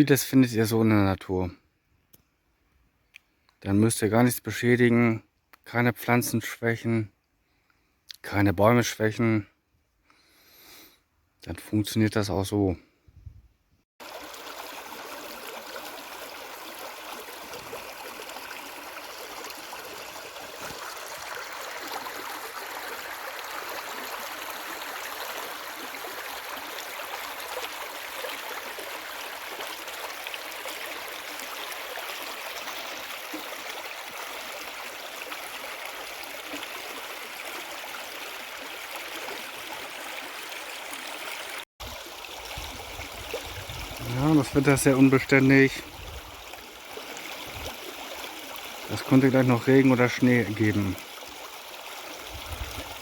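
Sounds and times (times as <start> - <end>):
stream water running: 14.0 - 53.0.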